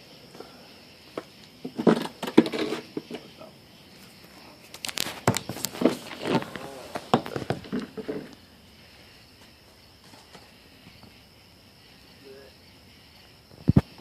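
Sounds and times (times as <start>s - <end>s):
crickets trilling: 0.0s - 14.0s
faint fire clicks: 4.2s - 7.5s.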